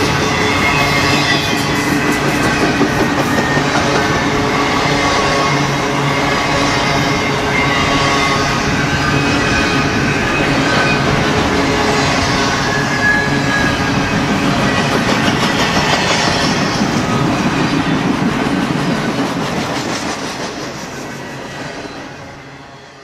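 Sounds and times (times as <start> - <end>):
high wheel squeal: 0.0 - 17.9
freight train wheels rumbling on rail: 0.0 - 23.0.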